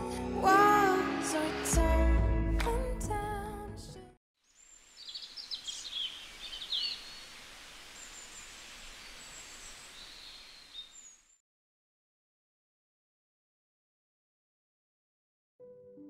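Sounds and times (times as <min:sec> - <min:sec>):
birds chirping: 0:04.5 - 0:11.4
steady outdoor hiss: 0:04.5 - 0:11.4.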